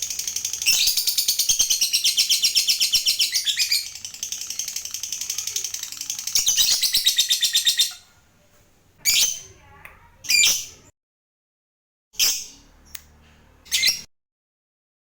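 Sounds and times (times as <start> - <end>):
lovebird chattering trill: 0.0 - 8.1.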